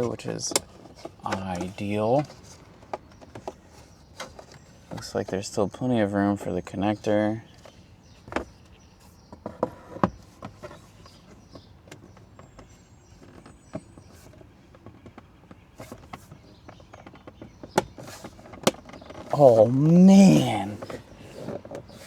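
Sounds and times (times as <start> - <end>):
plastic trim clicks and knocks: 9.4 - 19.3.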